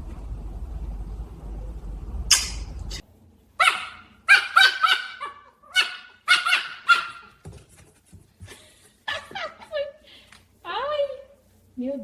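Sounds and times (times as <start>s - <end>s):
low hum: 0.0s - 3.0s
young dog yipping: 2.3s - 3.0s, 3.6s - 7.3s.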